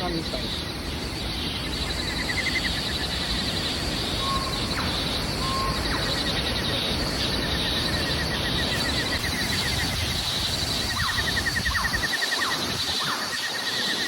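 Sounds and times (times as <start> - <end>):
waterfall rushing: 8.6 - 14.0.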